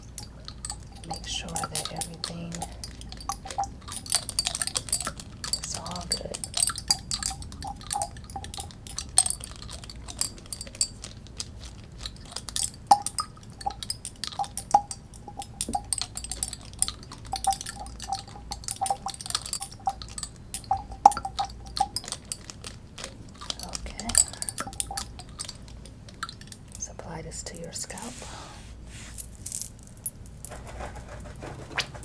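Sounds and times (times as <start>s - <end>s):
glass bottle clinking: 0.0s - 11.2s, 12.1s - 22.7s, 23.3s - 26.8s
liquid sloshing: 0.0s - 29.4s.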